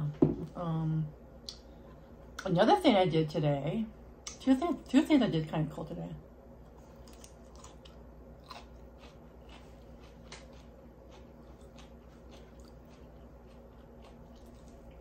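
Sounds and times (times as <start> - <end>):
person chewing food: 6.7 - 15.0.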